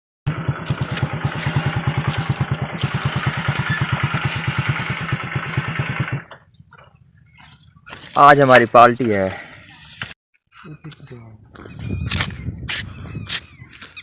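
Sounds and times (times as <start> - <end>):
small engine running: 0.3 - 7.7.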